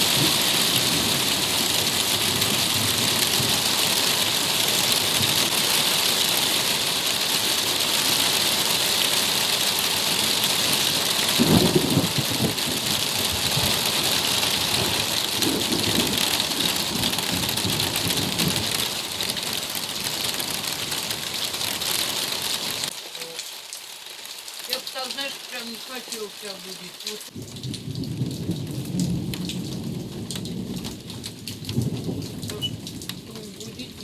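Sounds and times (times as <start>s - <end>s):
heavy rain: 0.0s - 34.0s
thunder rumbling: 11.3s - 19.4s, 27.3s - 34.0s.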